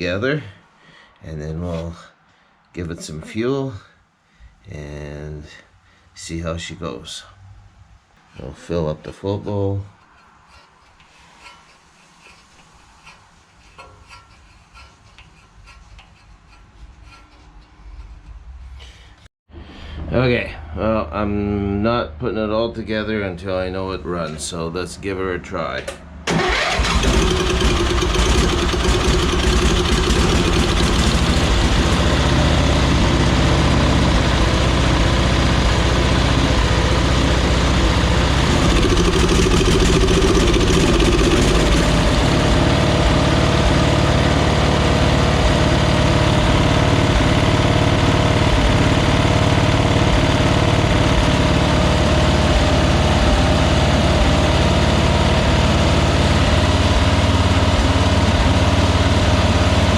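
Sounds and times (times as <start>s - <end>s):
lawn mower engine running: 26.3s - 59.9s.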